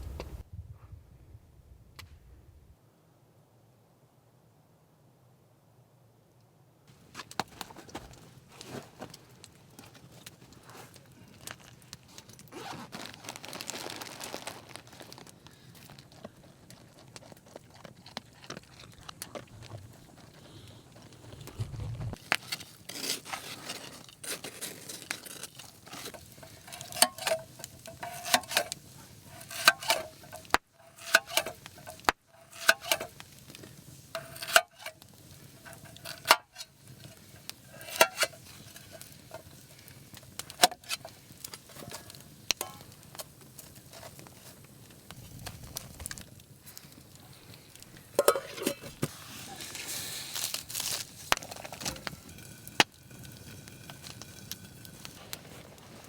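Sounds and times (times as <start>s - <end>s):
metal utensil scraping a pan: 22.3s - 43.2s, 48.1s - 55.6s.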